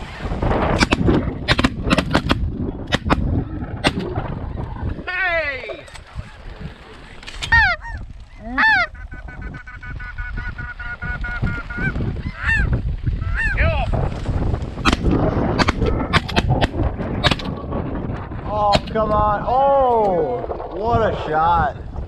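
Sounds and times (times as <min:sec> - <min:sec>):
geese honking: 0:07.5 - 0:13.6
sharp gunshot cracks: 0:14.8 - 0:17.5.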